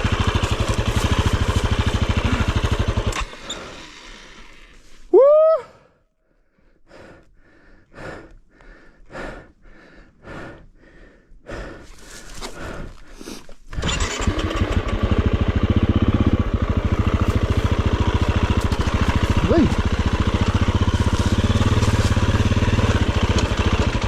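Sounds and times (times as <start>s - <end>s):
dirt bike engine running: 0.0s - 4.5s, 13.7s - 24.0s.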